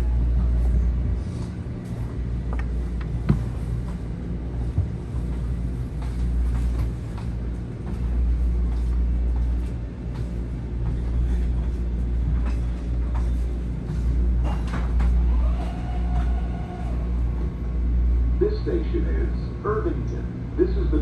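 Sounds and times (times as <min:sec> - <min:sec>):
train interior hum and rumble: 0:00.0 - 0:21.0.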